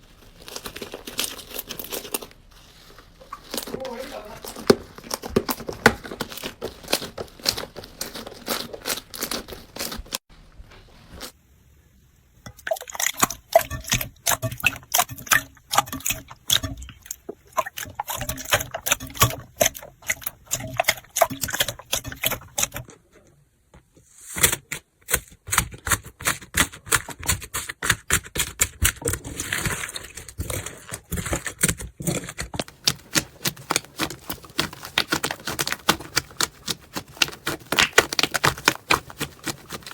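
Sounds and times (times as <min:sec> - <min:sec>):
crunchy slime crackling and popping: 0:00.0 - 0:10.3, 0:27.8 - 0:39.9.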